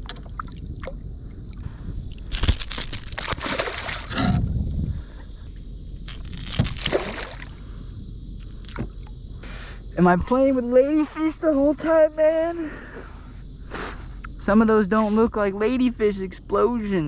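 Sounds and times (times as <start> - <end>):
water splashing against a kayak: 2.2 - 4.4, 6.1 - 7.5.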